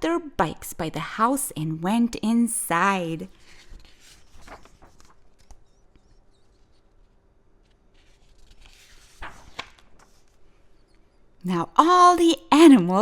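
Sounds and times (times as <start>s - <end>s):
paper page rustling: 3.3s - 10.6s.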